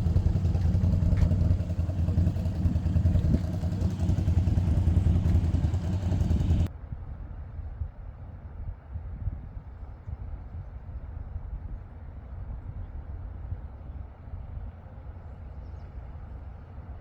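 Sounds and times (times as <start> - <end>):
vehicle engine rumbling: 0.0 - 6.7.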